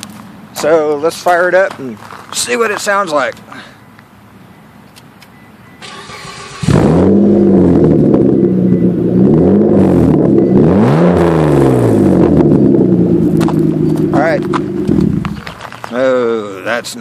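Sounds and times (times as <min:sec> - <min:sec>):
car engine starting and idling: 0:04.2 - 0:17.0.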